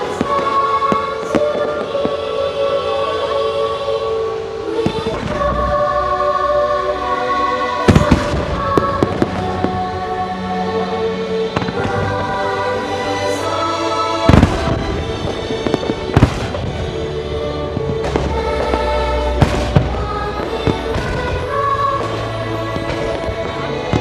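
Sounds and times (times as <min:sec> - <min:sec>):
fireworks pops and crackles: 0:00.0 - 0:02.2, 0:04.8 - 0:05.7, 0:07.9 - 0:09.8, 0:14.3 - 0:17.0, 0:17.8 - 0:24.0
fireworks bangs: 0:00.0 - 0:03.5, 0:04.2 - 0:06.0, 0:07.6 - 0:10.3, 0:11.5 - 0:24.0
orchestral music: 0:00.0 - 0:24.0.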